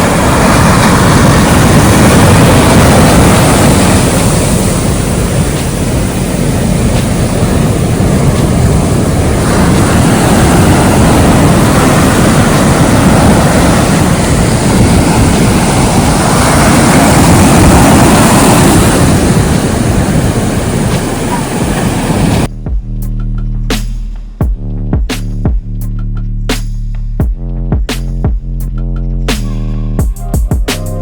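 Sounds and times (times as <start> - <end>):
surf breaking on beach: 0.0 - 22.5
wind rumbling on microphone: 0.0 - 31.0.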